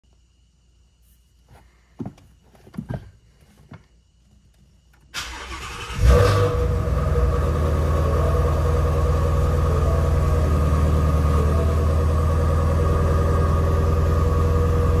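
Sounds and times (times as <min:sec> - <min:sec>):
car engine starting and idling: 0:05.0 - 0:15.0.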